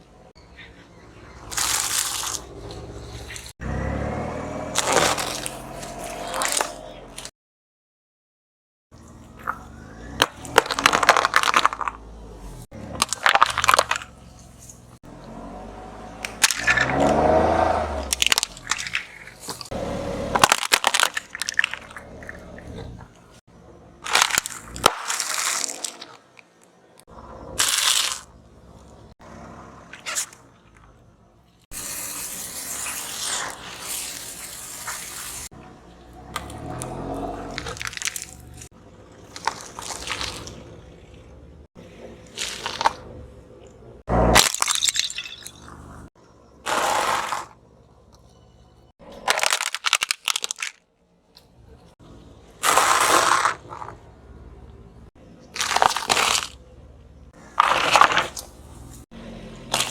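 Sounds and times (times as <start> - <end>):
objects crushed under car tyres: 4.6 - 6.8, 9.4 - 15.0, 16.2 - 23.4, 24.0 - 26.6, 27.4 - 29.1, 32.6 - 41.0, 41.9 - 43.3, 44.0 - 47.6, 49.0 - 50.9, 52.6 - 54.1, 55.4 - 56.7, 57.3 - 59.9.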